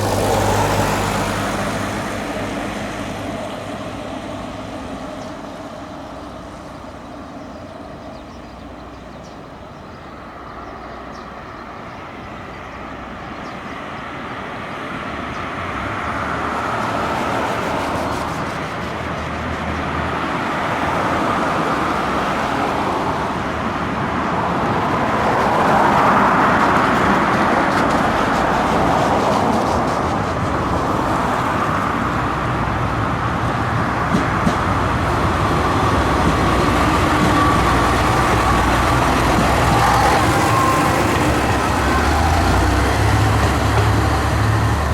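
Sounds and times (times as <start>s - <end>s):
train running slowly: 0.0s - 44.9s.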